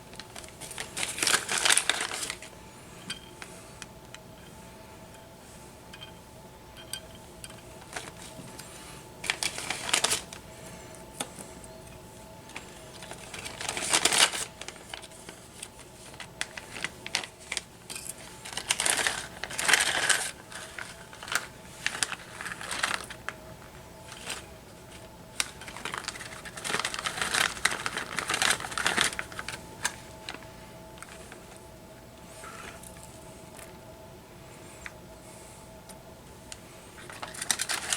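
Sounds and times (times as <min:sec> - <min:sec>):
rustling: 0:00.0 - 0:03.9, 0:07.7 - 0:11.6, 0:12.5 - 0:23.3, 0:24.1 - 0:31.7
faint steady hum: 0:00.0 - 0:37.9
small tools clicking and tapping: 0:06.8 - 0:07.7.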